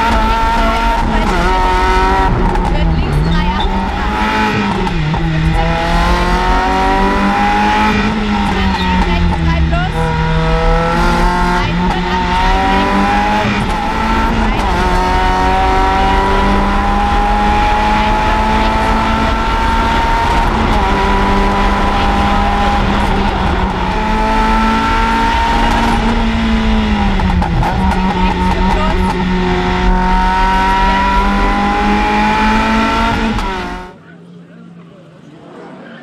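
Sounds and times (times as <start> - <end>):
car engine accelerating: 0.0 - 34.2.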